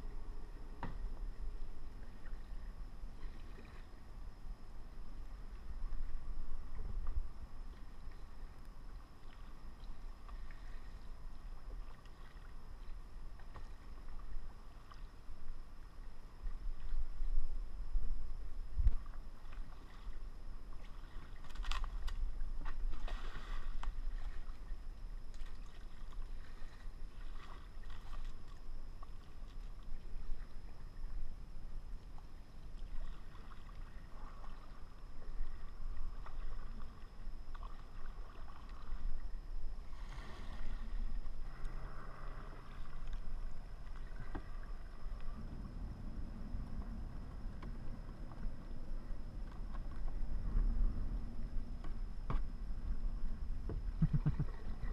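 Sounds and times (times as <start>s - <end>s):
steady low rumble: 0.0s - 54.9s
paddles splashing in water: 19.0s - 30.4s, 32.7s - 45.4s, 53.7s - 54.9s.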